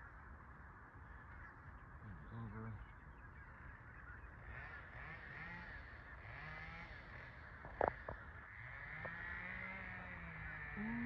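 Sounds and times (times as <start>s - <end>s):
flock of birds calling: 0.0s - 11.0s.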